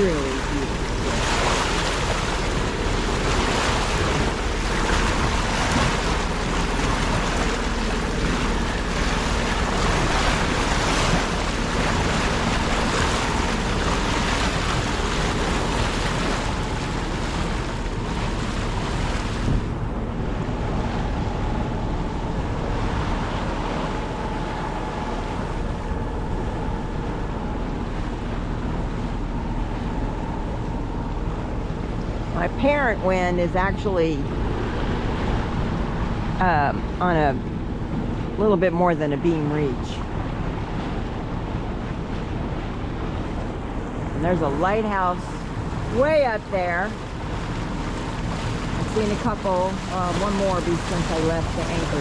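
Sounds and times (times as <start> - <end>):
wind buffeting the microphone: 0.0 - 24.1
water rushing and splashing: 0.0 - 52.0.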